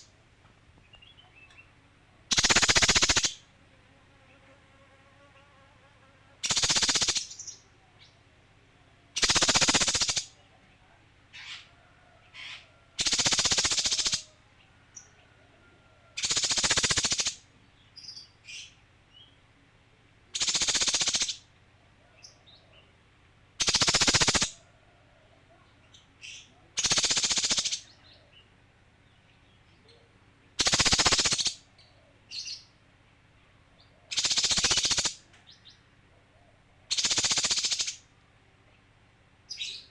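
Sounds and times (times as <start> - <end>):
bird calling in rattling bursts: 2.3 - 3.4, 6.4 - 7.6, 9.2 - 10.4, 12.4 - 14.3, 16.2 - 17.4, 20.3 - 21.5, 23.6 - 24.6, 26.8 - 27.9, 30.6 - 31.7, 34.1 - 35.3, 36.9 - 38.1.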